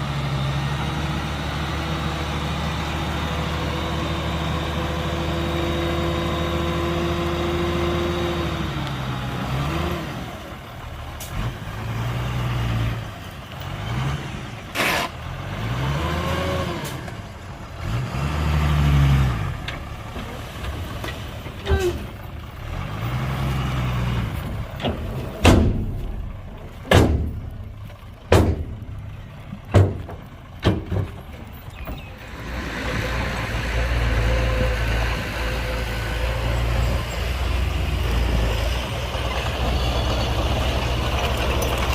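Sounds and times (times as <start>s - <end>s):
heavy diesel engine revving: 0.0s - 20.6s, 21.7s - 30.0s
sharp bangs and knocks: 24.8s - 29.0s, 29.6s - 31.5s.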